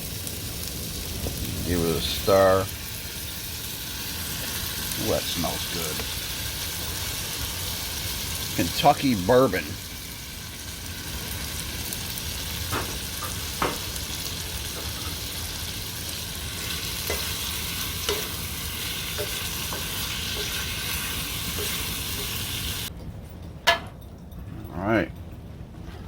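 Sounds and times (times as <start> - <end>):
chicken sizzling in frying pan: 0.0 - 22.9
utensil clicking against pan: 18.0 - 18.4.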